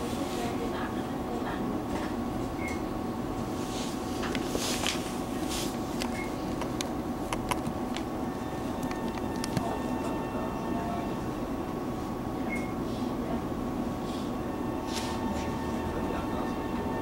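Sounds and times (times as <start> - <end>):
train interior hum: 0.0 - 17.0
sharp clicks and ticks: 6.0 - 8.1.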